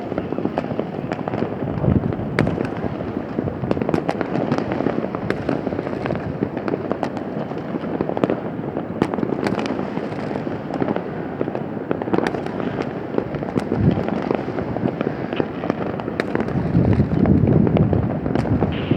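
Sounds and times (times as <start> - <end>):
fireworks crackling and popping: 0.0 - 18.9
deep firework booms: 1.2 - 7.3, 12.0 - 18.9.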